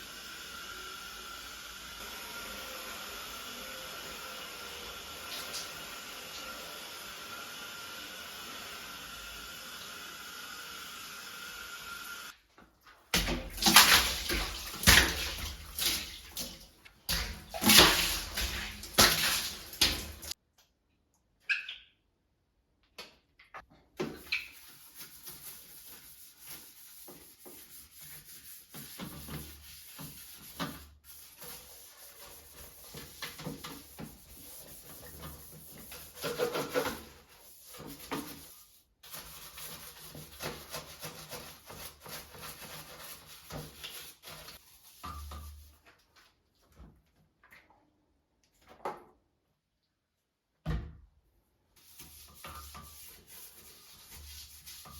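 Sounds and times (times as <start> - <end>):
water running and splashing: 13.2 - 20.4.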